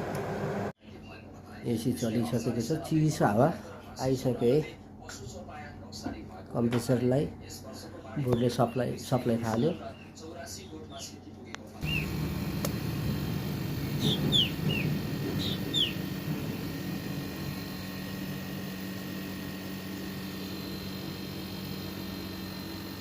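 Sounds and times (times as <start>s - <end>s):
air conditioner unit humming: 0.0s - 23.0s
bird chirps: 11.8s - 12.3s, 13.9s - 16.1s.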